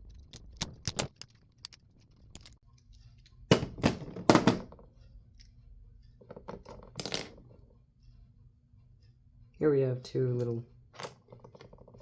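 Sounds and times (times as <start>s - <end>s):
small parts clicking and clattering: 0.0s - 3.4s, 10.4s - 12.0s.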